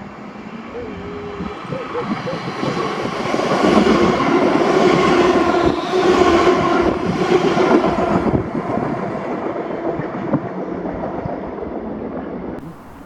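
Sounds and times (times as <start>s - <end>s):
passenger train passing at speed: 0.0s - 13.0s.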